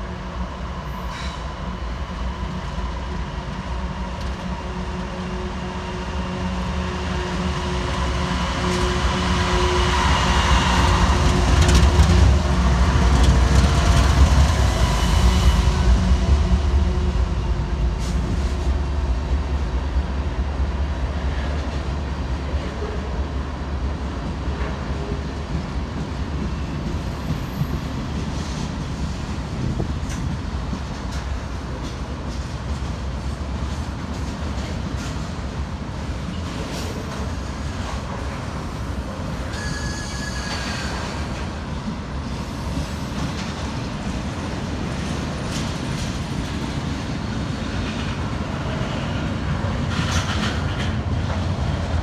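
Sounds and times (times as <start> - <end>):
freight train wheels rumbling: 0.0 - 52.0
wheel squeal: 39.5 - 41.3
clacks over rail joints: 47.7 - 51.5.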